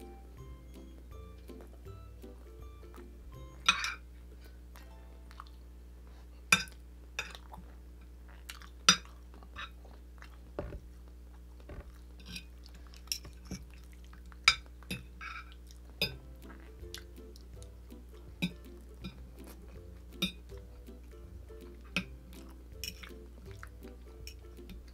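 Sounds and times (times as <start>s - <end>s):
cutlery clinking and scraping on plate: 3.6s - 4.0s, 11.7s - 13.6s, 14.5s - 16.2s, 20.2s - 20.5s, 22.8s - 23.2s
chewing: 4.2s - 24.9s.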